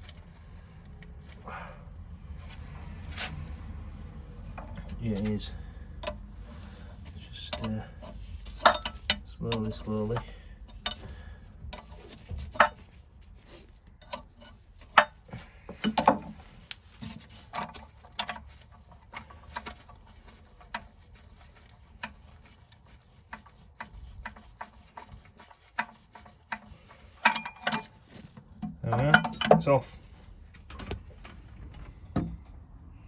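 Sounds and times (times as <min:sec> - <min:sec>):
metal tool clicks and knocks: 0:06.0 - 0:06.3, 0:07.5 - 0:12.8, 0:15.8 - 0:16.4, 0:25.8 - 0:29.8.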